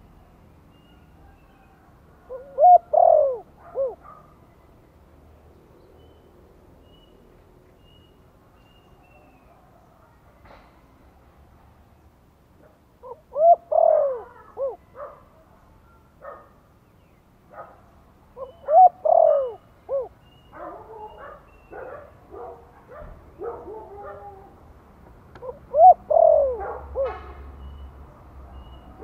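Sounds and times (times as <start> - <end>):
dove cooing: 1.6 - 4.2, 13.0 - 15.2, 18.4 - 22.7, 25.4 - 27.4.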